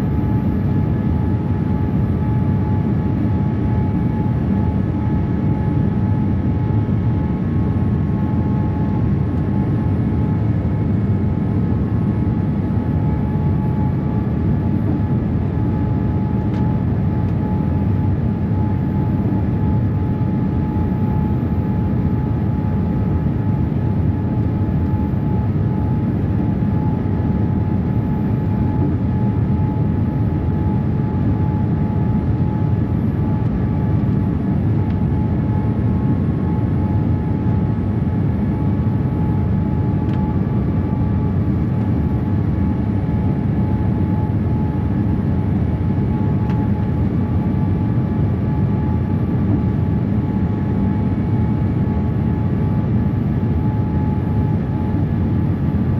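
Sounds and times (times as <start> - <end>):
airliner cabin engine rumble: 0.0 - 55.9.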